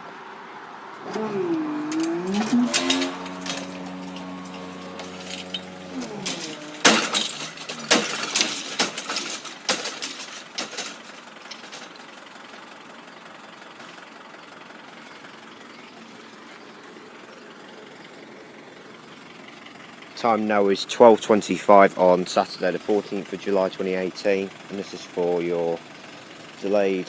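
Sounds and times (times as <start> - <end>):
vehicle engine idling: 1.1 - 27.0
sharp knocks and clatters: 1.9 - 12.1.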